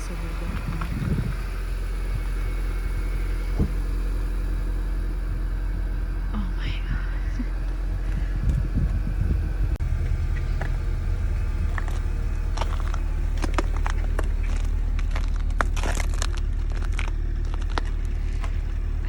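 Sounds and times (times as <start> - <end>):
car rumble: 0.0 - 19.0
crackling clicks: 11.7 - 18.6.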